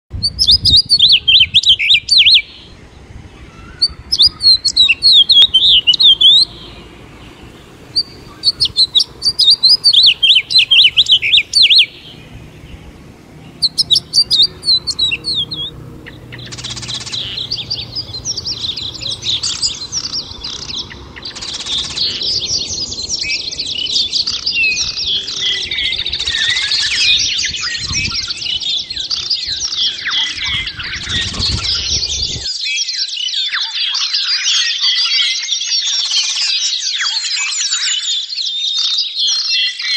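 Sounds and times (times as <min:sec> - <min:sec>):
chorus of birds chirping: 0:00.1 - 0:39.9
bird singing rapid high notes: 0:00.2 - 0:32.6.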